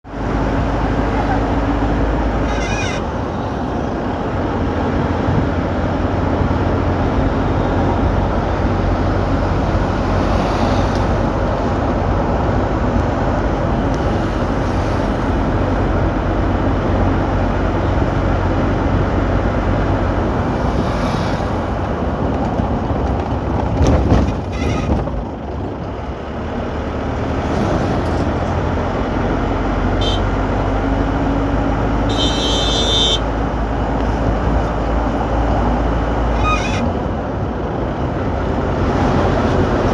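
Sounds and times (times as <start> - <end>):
car engine and road noise: 0.0 - 39.9
rattle in car: 1.1 - 5.6, 19.8 - 28.8, 33.9 - 39.9.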